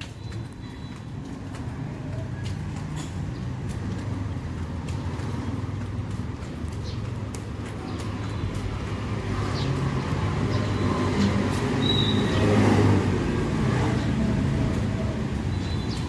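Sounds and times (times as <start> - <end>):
street traffic rumble: 0.0 - 16.0
vehicle passing close: 9.3 - 16.0.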